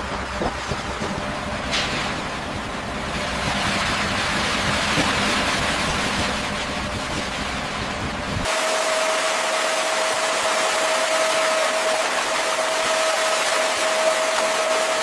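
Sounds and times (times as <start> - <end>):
broad rushing noise: 0.0 - 15.0
heavy machinery engine running: 0.0 - 15.0.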